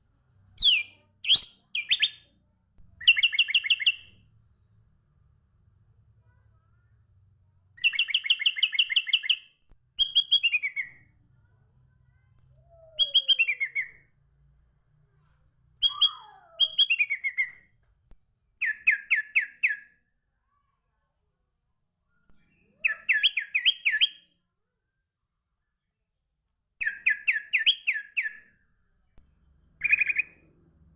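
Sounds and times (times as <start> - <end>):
songbird singing: 0.6 - 2.4, 3.0 - 4.2, 7.8 - 11.2, 12.6 - 14.1, 15.8 - 17.7, 18.6 - 20.0, 22.5 - 24.3, 26.8 - 28.5, 29.4 - 30.5.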